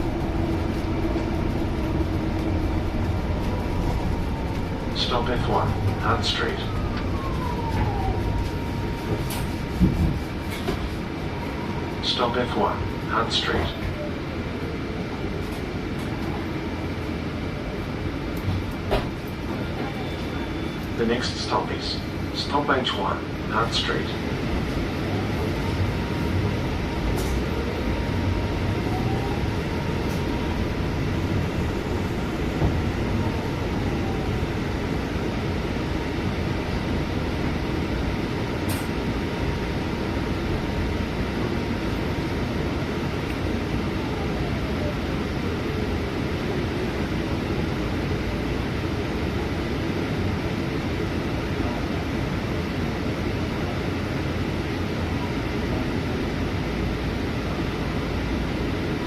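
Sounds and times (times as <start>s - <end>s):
drivetrain whine: 0.0s - 14.3s, 24.2s - 44.3s
bus engine and road rumble: 0.0s - 59.0s.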